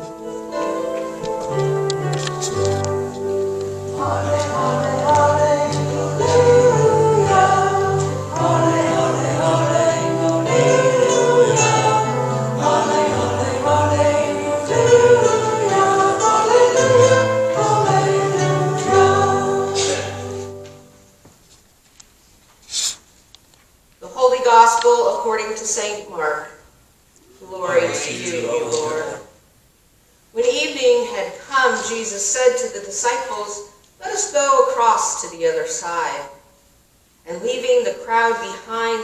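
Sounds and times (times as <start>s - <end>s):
voices singing with instruments: 3.9s - 20.6s.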